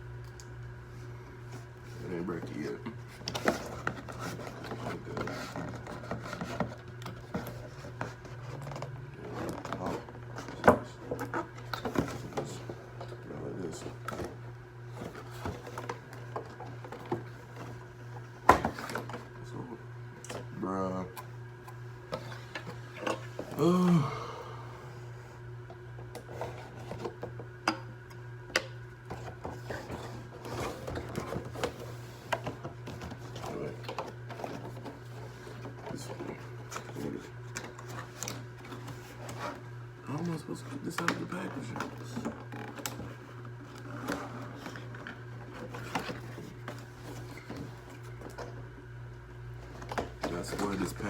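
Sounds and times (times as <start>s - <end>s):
steady low hum: 0.0s - 51.0s
plastic and cardboard rustling: 1.5s - 17.9s, 29.1s - 48.6s, 49.6s - 51.0s.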